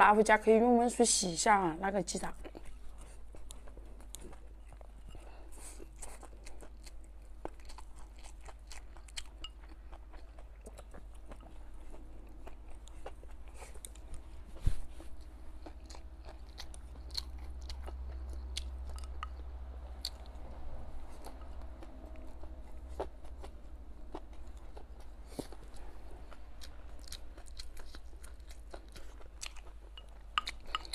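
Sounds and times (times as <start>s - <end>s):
chewing and crunching food: 0.0s - 30.9s.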